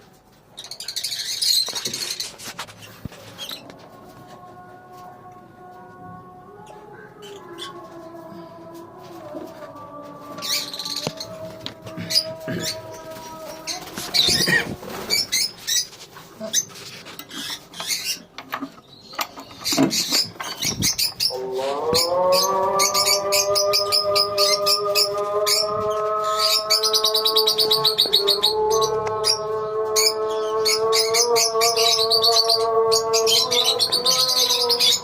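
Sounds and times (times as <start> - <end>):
lovebirds chirping and squawking: 0.4 - 4.0, 6.6 - 8.2, 9.9 - 35.0
call to prayer over loudspeaker: 21.3 - 35.0.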